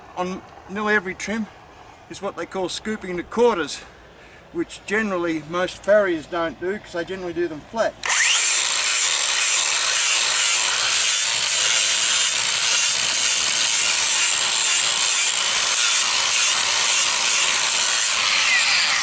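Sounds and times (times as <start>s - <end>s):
power grinder on hoof: 8.0s - 19.0s.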